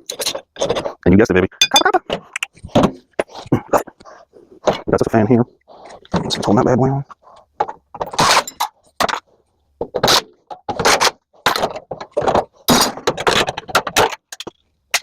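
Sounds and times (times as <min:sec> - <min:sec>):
metal parts clanking and rattling: 0:00.0 - 0:00.9, 0:07.6 - 0:09.2, 0:09.9 - 0:15.0.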